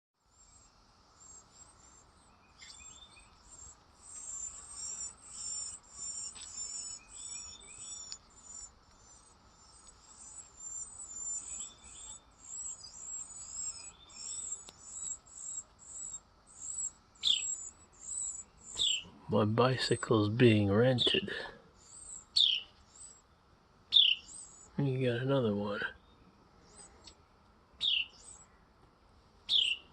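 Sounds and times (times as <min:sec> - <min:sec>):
birds chirping: 0:00.3 - 0:28.8, 0:29.4 - 0:29.9.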